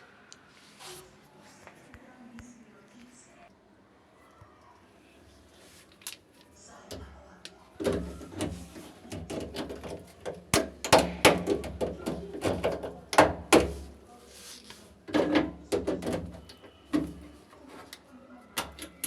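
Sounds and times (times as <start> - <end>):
hard parts knocking and clattering: 7.8 - 13.9, 15.1 - 17.4.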